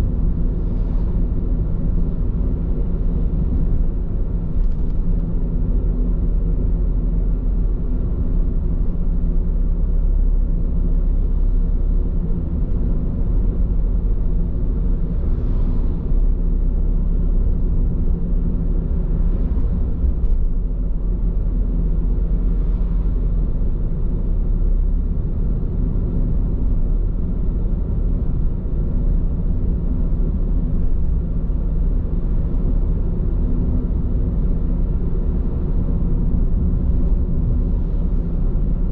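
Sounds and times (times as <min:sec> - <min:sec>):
road and tyre noise in car: 0:00.0 - 0:38.9.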